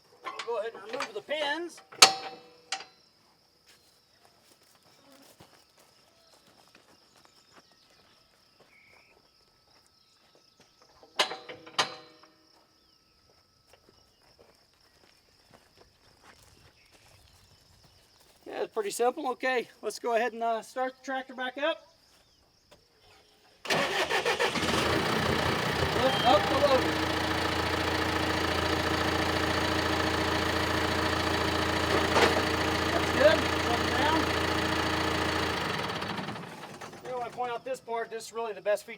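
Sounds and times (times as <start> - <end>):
sharp metal clanks: 0.2 - 3.0
sharp metal clank: 1.8 - 3.0
tractor diesel engine idling: 23.7 - 37.7.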